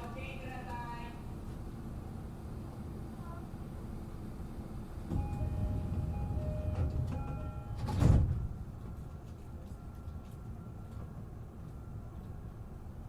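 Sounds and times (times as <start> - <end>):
low rumble of stopped train: 0.0 - 13.0
sliding doors shutting thud: 5.0 - 8.6
train door chime: 5.1 - 12.6.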